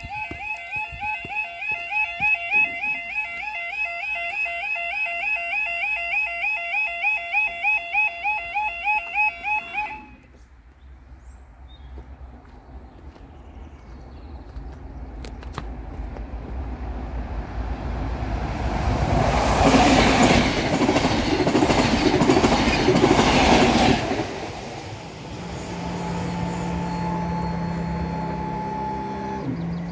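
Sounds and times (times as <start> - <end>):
diesel train passing: 9.2 - 29.9
crossing barrier mechanical hum: 15.7 - 29.9
train wheel clatter: 19.1 - 24.9.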